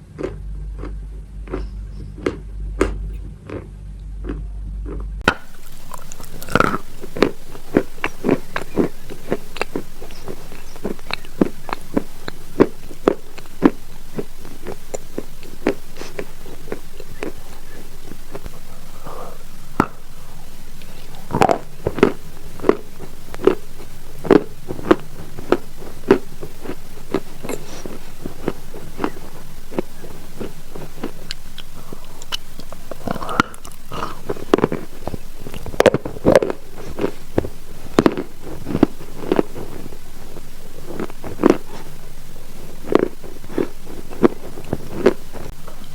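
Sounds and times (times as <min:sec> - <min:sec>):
chalk crunching being chewed: 0:00.1 - 0:45.9.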